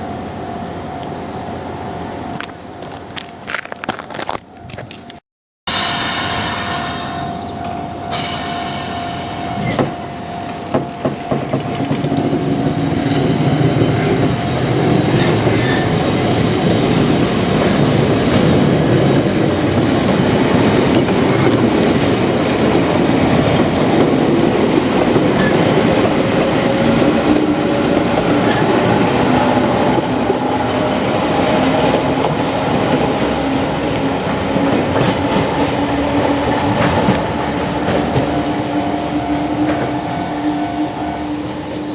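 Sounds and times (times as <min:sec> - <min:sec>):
train rumble: 0:00.0 - 0:41.9
train wheel knocks: 0:09.6 - 0:19.1.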